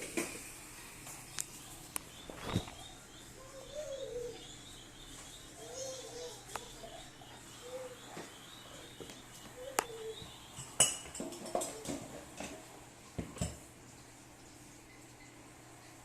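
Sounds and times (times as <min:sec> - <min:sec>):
dove cooing softly: 0:02.3 - 0:10.5, 0:11.4 - 0:12.6.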